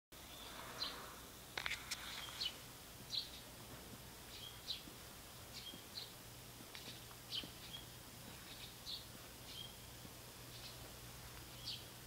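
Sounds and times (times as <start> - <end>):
outdoor ambience: 0.1 - 12.0
high bird chirps: 2.1 - 3.5, 4.3 - 4.9, 5.5 - 6.2, 6.8 - 9.9, 10.5 - 10.8, 11.5 - 11.9.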